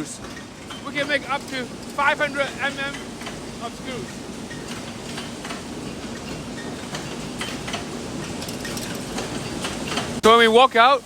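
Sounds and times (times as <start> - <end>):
screw-making machines clattering: 0.0 - 10.2.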